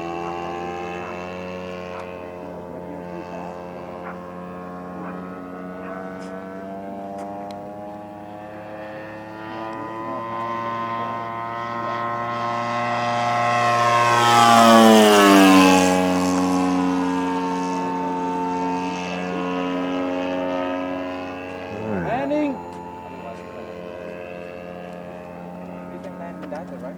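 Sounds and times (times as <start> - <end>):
model plane engine flying past: 0.0 - 26.9.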